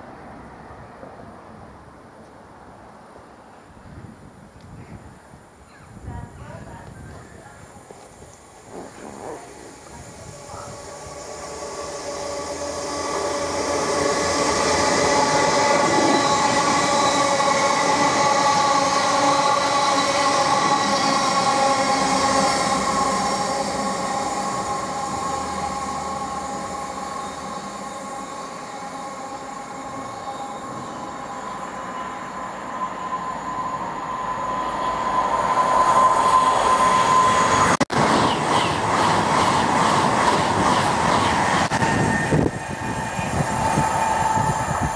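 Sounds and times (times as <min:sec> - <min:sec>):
train passing: 0:00.0 - 0:04.3, 0:06.0 - 0:44.9
steady whine: 0:08.3 - 0:38.1.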